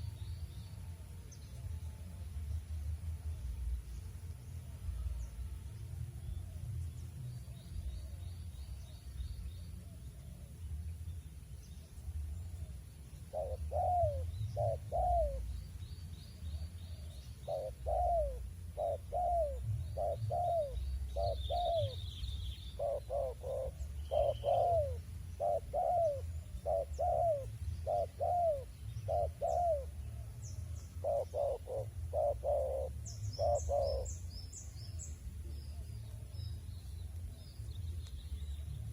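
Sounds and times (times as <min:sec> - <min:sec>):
dove cooing: 0:12.6 - 0:15.6, 0:16.5 - 0:35.0.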